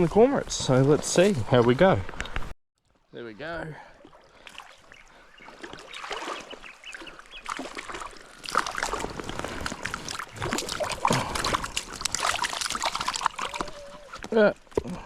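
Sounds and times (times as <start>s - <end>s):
water splashing in shallow river: 3.8s - 15.0s.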